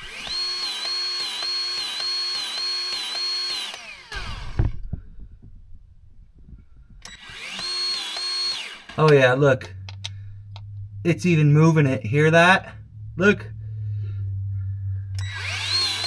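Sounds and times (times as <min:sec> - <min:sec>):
grease gun motor whining: 0:00.0 - 0:04.8, 0:07.0 - 0:09.2, 0:15.1 - 0:16.0.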